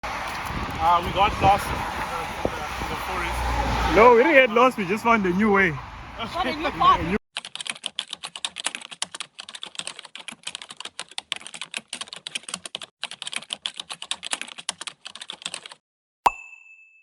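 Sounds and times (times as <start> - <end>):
rapid keyboard typing: 7.4 - 15.8.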